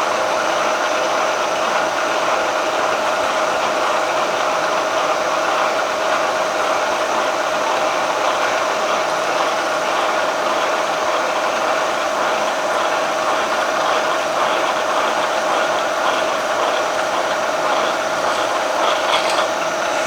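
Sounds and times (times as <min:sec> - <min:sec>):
milling machine whining: 0:09.8 - 0:20.0.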